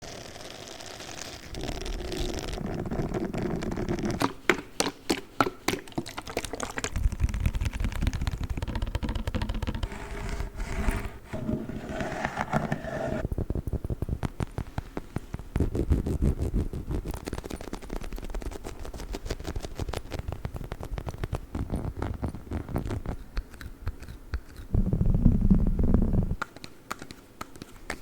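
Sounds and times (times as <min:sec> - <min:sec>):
scratchy rustling: 0:09.6 - 0:13.2.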